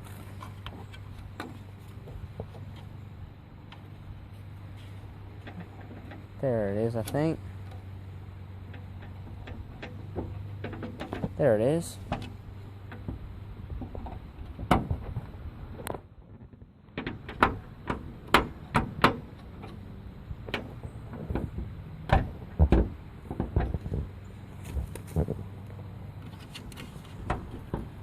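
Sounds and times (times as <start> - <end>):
low steady hum: 0.0 - 28.0
metal clicks and knocks: 5.3 - 7.9, 8.6 - 15.2, 15.8 - 19.8, 20.4 - 24.1, 26.2 - 28.0.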